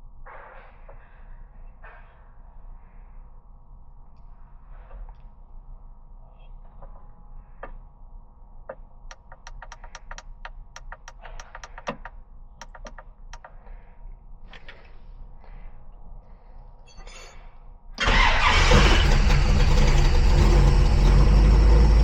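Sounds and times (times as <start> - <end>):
sharp light clicks: 9.1 - 13.5.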